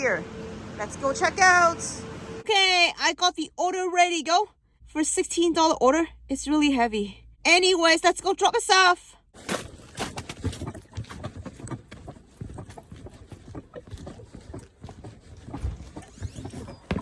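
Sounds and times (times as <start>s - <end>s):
bottles and cans knocking in bag: 9.4s - 11.3s
footsteps: 9.4s - 17.0s.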